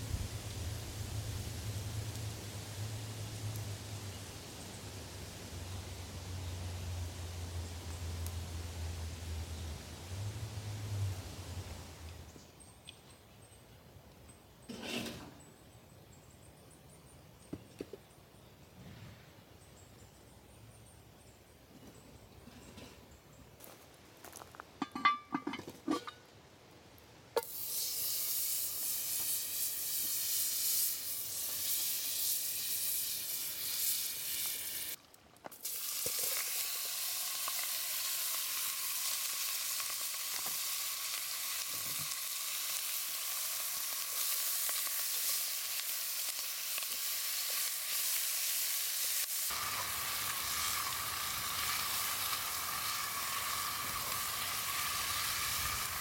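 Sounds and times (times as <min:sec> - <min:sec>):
food frying sizzle: 0:27.4 - 0:56.0.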